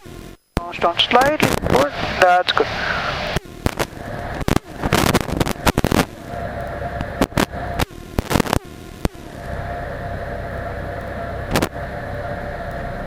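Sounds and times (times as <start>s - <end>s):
sharp crackles: 0.0s - 11.8s
small plane engine droning: 0.0s - 13.0s
steady tone: 0.2s - 13.0s.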